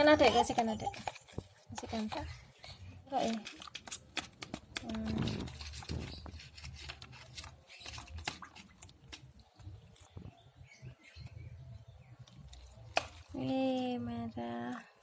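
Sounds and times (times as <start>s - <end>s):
spoon stirring in a bowl: 0.2s - 10.1s.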